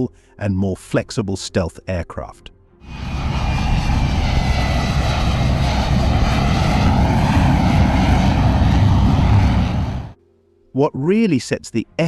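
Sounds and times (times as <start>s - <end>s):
jet engine roar: 2.8s - 10.2s.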